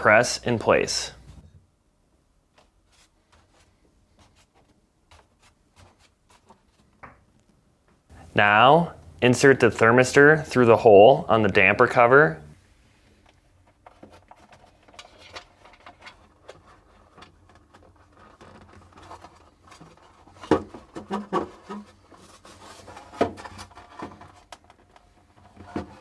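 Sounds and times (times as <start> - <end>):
light rubbing on plastic: 16.2 - 24.5.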